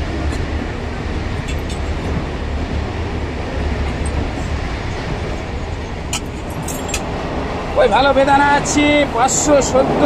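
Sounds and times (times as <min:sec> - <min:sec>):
train low rumble: 0:00.0 - 0:10.0.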